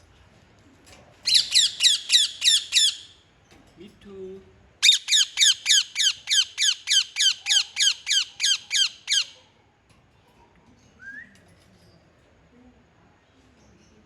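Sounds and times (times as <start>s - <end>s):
parrot squawking harshly: 4.8s - 9.4s.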